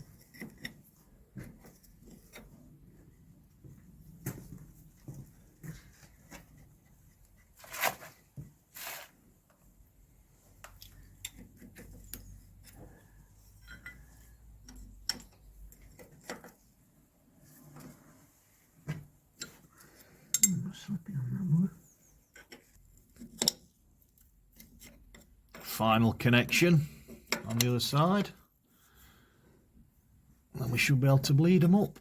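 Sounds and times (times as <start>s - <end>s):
spanners clinking on metal fittings: 20.3s - 20.6s.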